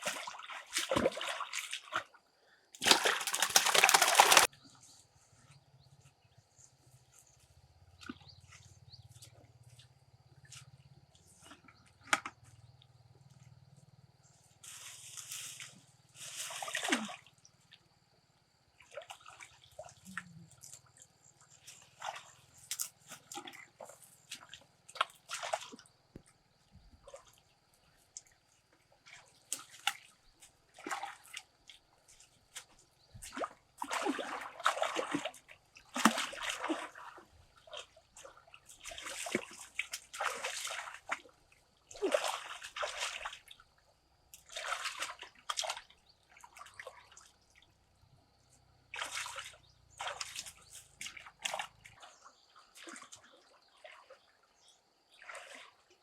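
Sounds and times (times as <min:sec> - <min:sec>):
water splashing and sloshing: 0:00.0 - 0:02.2, 0:02.8 - 0:04.5, 0:14.8 - 0:17.3, 0:18.7 - 0:56.0.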